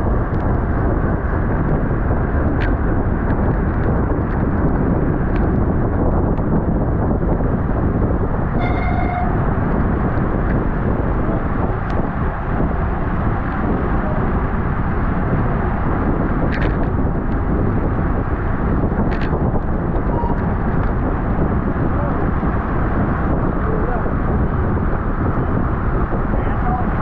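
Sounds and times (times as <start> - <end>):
wind rushing over microphone: 0.0 - 27.0.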